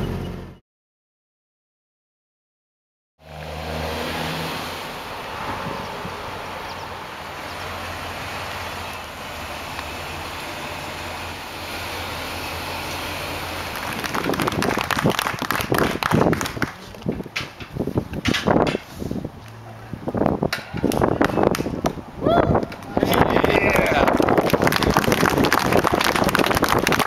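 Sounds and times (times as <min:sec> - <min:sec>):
loud irregular claps and knocks: 0:13.8 - 0:16.8, 0:20.6 - 0:22.0.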